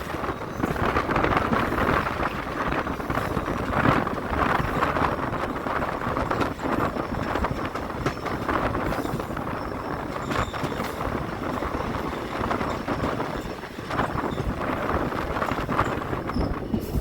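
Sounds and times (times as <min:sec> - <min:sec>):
sharp clicks of train wheels: 0:00.0 - 0:17.0
train rumbling along track: 0:00.0 - 0:17.0.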